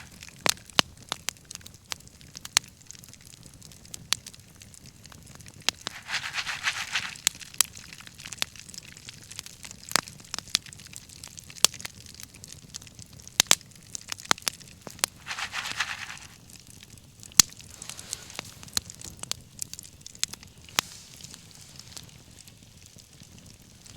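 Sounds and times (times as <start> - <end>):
bonfire crackling: 0.0 - 23.9
rushing hiss: 17.6 - 18.8.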